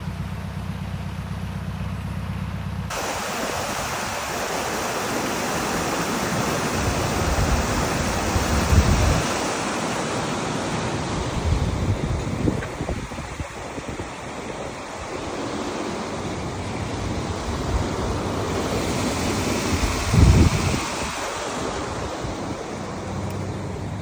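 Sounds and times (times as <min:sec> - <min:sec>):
boat engine ticking over: 0:00.0 - 0:06.2, 0:10.5 - 0:20.1
water rushing into lock: 0:02.9 - 0:24.0.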